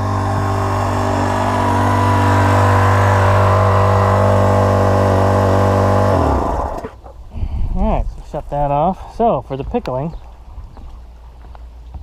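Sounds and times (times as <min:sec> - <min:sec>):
motor and pump running: 0:00.0 - 0:07.2.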